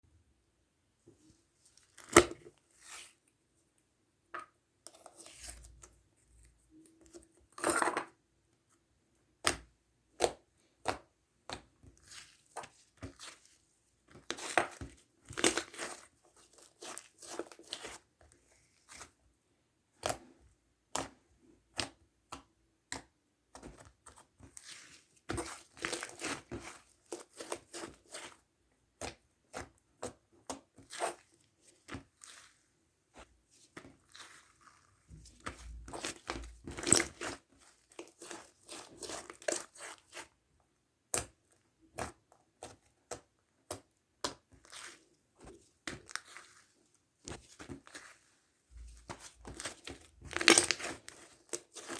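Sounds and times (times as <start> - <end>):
slime clicking and crackling: 49.4 - 51.9.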